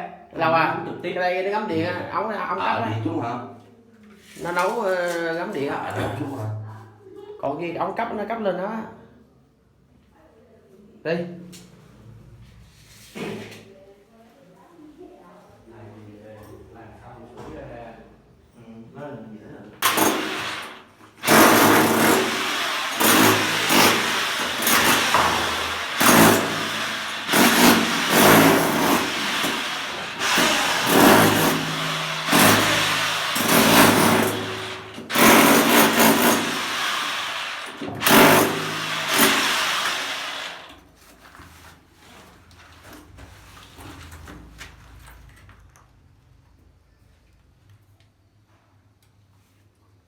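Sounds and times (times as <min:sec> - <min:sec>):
handheld power tool running: 0:19.8 - 0:40.8.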